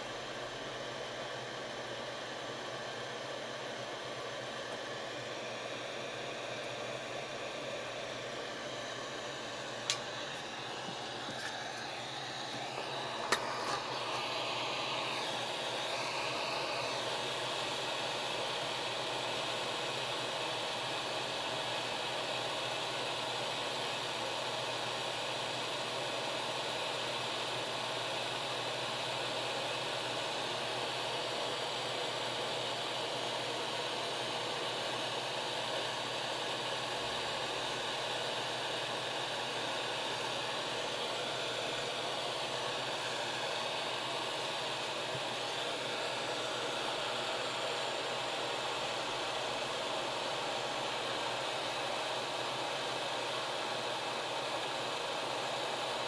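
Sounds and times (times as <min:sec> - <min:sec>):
hot air gun hissing: 0:09.8 - 0:18.4.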